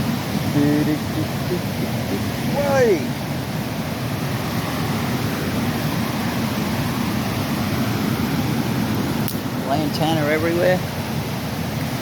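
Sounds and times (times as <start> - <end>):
flooded creek roaring: 0.0 - 12.0.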